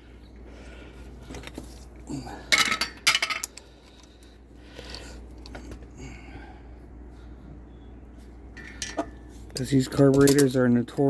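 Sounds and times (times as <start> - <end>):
metal parts clinking: 2.5 - 4.2, 8.6 - 11.0.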